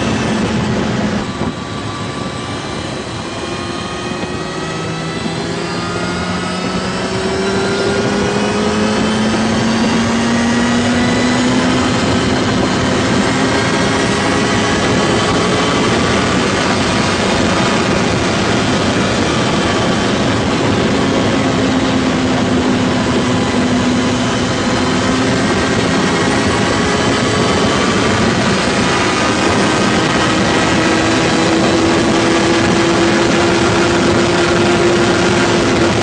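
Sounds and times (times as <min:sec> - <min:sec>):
loud engine rising in pitch: 0:00.0 - 0:36.0.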